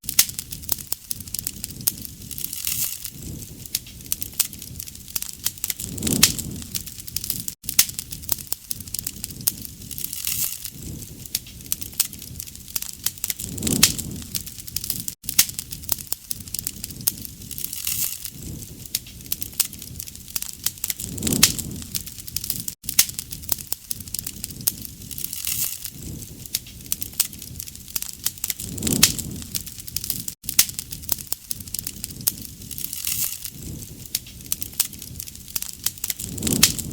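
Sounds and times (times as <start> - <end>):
wood fire crackling: 0.0 - 36.9
low flame noise: 0.1 - 36.9.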